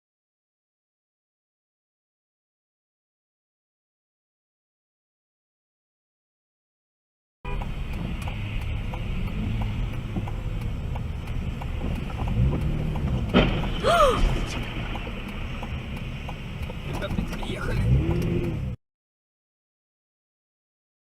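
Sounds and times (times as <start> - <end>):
car engine and road noise: 7.4 - 18.8.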